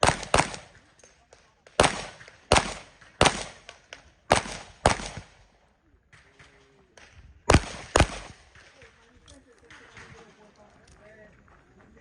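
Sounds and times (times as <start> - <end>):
handgun shots echoing: 0.0 - 5.3.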